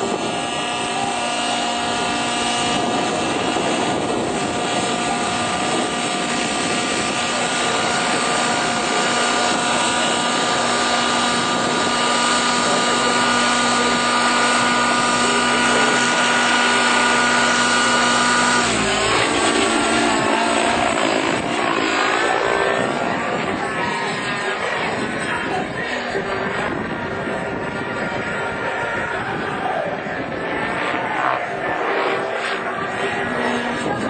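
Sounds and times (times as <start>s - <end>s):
constant whine: 0.0s - 34.0s
helicopter engine and rotor: 0.0s - 34.0s.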